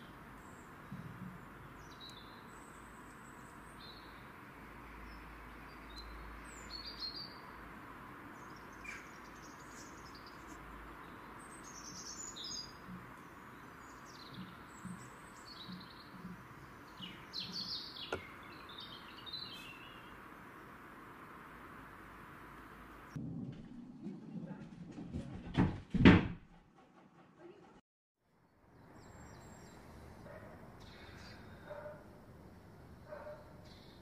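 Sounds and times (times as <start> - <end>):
small birds chirping: 0.0 - 7.6, 8.2 - 21.0, 28.8 - 34.0
outdoor ambient hiss: 0.0 - 23.2, 28.2 - 34.0.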